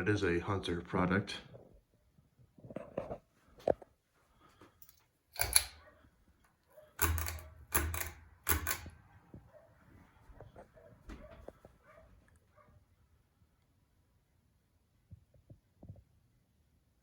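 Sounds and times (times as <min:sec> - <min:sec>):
short clicks and knocks: 0:04.8 - 0:05.9, 0:07.0 - 0:09.0.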